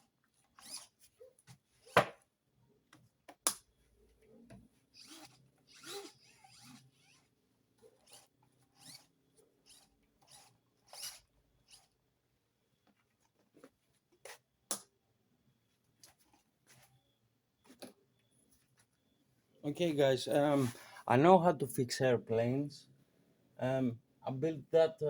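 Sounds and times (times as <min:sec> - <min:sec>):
servos buzzing: 0:04.9 - 0:12.0.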